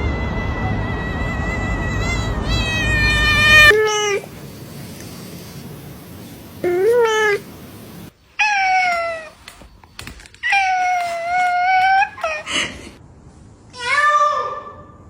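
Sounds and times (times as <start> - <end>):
cat meowing: 2.0 - 4.2.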